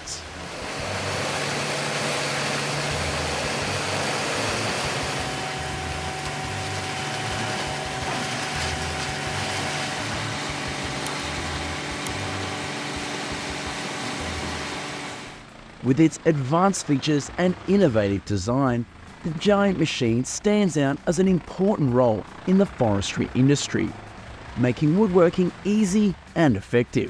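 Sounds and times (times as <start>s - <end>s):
wood grinder running: 0.0s - 15.5s.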